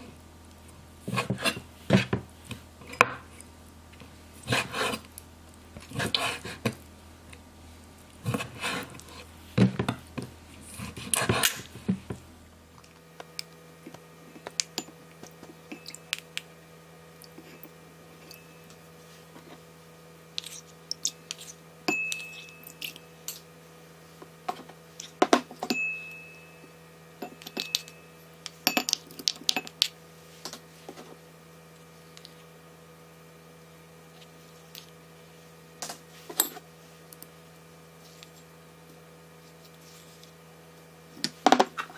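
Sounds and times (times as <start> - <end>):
knife cutting on wooden board: 4.4 - 5.1
spoons clinking on ceramic bowl: 21.9 - 23.4, 27.2 - 28.1, 28.7 - 29.7.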